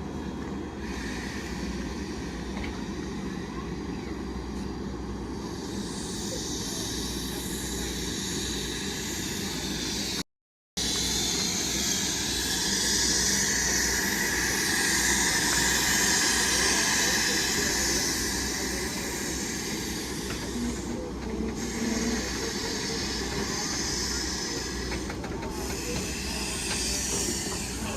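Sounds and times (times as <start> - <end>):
train running past: 0.0 - 10.2, 10.8 - 27.9.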